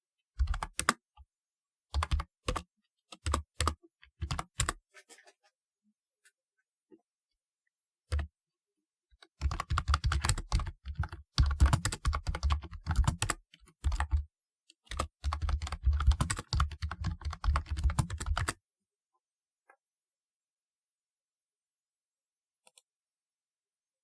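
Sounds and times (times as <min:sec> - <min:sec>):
clacking keyboard keystrokes: 0:00.4 - 0:00.9, 0:02.0 - 0:02.6, 0:09.4 - 0:14.2, 0:14.9 - 0:18.6.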